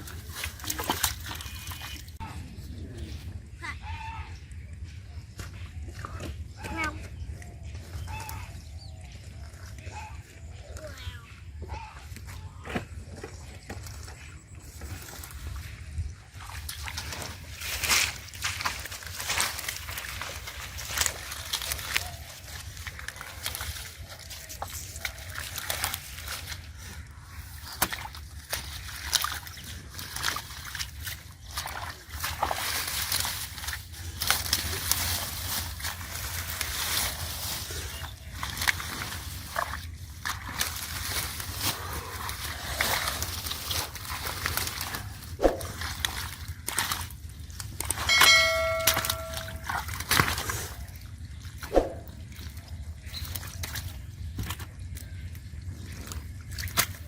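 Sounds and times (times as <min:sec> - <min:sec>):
river water sloshing and splashing: 0:00.0 - 0:02.2, 0:13.1 - 0:57.0
steady low hum: 0:00.0 - 0:57.0
ringing tone with overtones: 0:48.1 - 0:49.7.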